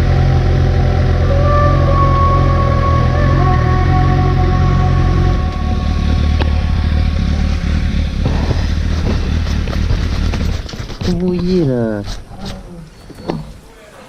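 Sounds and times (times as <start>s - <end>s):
background music tones: 0.0s - 8.5s
motorcycle engine running: 0.0s - 11.2s.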